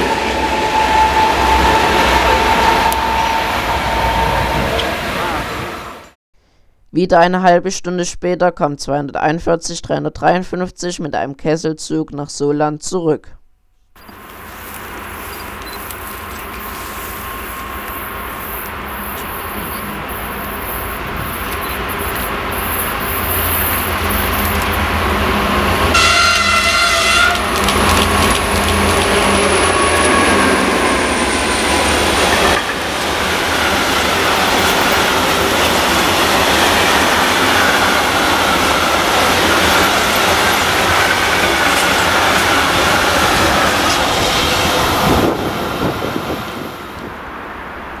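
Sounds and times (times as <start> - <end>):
diesel locomotive horn blast: 0.0 - 6.1, 23.8 - 43.7
train wagons rolling: 14.0 - 46.6.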